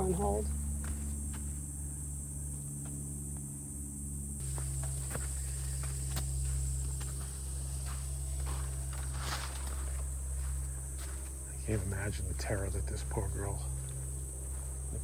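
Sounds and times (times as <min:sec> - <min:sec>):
footsteps on muddy trail: 0:00.5 - 0:01.8, 0:04.4 - 0:15.0.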